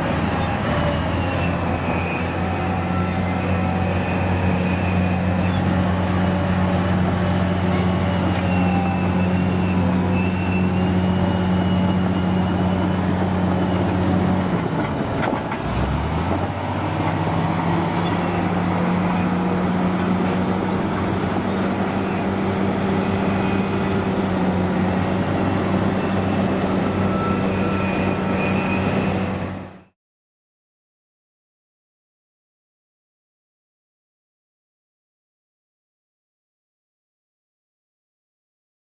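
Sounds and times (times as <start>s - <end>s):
heavy vehicle engine running: 0.0s - 29.9s.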